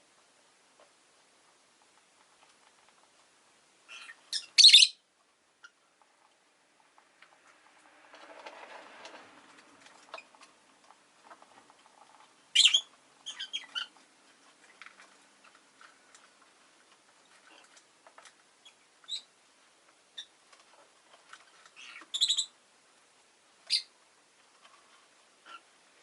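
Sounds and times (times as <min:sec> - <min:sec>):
lovebird chirping: 0:03.9 - 0:05.0, 0:12.5 - 0:14.0, 0:18.6 - 0:19.3, 0:21.8 - 0:22.6, 0:23.7 - 0:23.9
soft rushing noise: 0:07.0 - 0:10.6.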